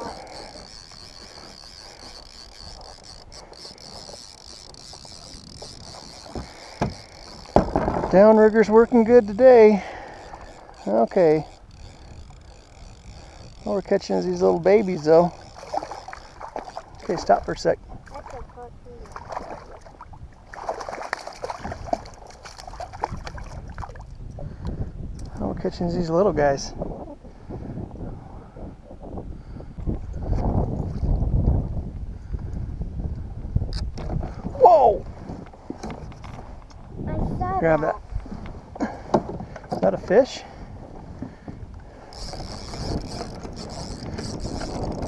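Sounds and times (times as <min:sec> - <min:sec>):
high-pitched insect chirring: 0:00.0 - 0:07.6
water splashing and trickling: 0:00.0 - 0:24.3
wind rumble on microphone: 0:00.0 - 0:45.0
small knocks on kayak: 0:06.3 - 0:08.2, 0:39.1 - 0:39.9.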